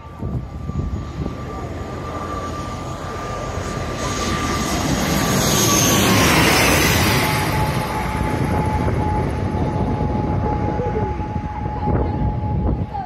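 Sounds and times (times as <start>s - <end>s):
wind rumble on microphone: 0.0s - 2.6s, 7.0s - 13.0s
jet airliner engine whine: 0.0s - 13.0s.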